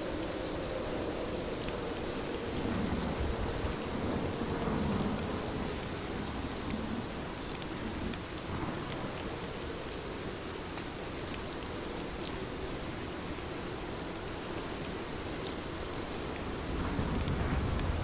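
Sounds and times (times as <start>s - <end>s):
heavy rain falling: 0.0s - 18.0s
raindrop ticks: 1.4s - 12.5s, 16.3s - 18.0s.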